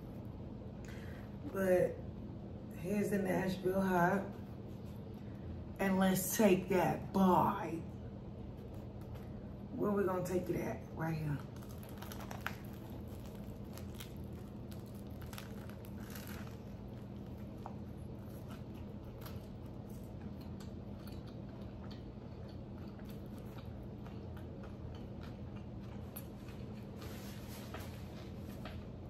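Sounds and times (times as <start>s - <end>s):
crisp chewing crunches: 11.4s - 27.9s
biting into a sandwich: 11.5s - 29.0s.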